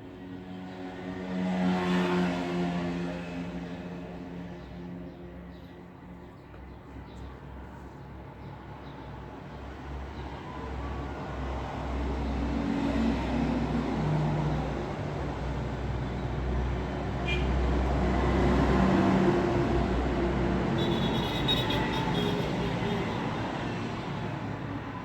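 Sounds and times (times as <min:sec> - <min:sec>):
vehicle engines humming: 0:12.0 - 0:25.0.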